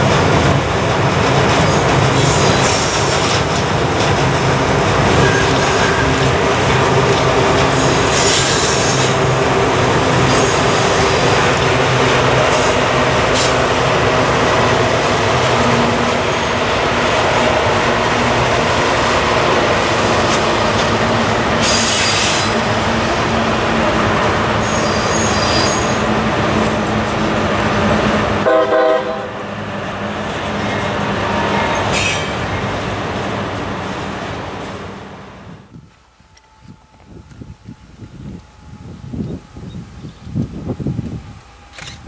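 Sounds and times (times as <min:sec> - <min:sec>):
diesel locomotive engines: 0:00.0 - 0:42.0
wheels rumbling on rail: 0:00.0 - 0:42.0
high-pitched wheel squeal: 0:24.6 - 0:26.0.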